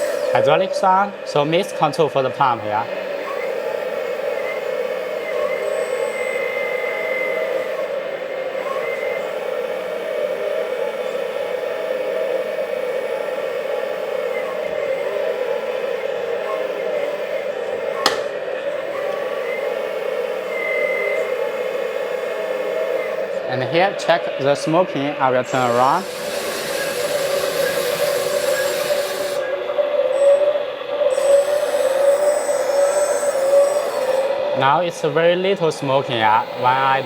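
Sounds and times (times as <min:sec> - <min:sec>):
hydraulic pump whirring: 0:00.0 - 0:37.0
simulated engine sounds from speaker: 0:00.0 - 0:37.0
sharp click: 0:18.0 - 0:18.4.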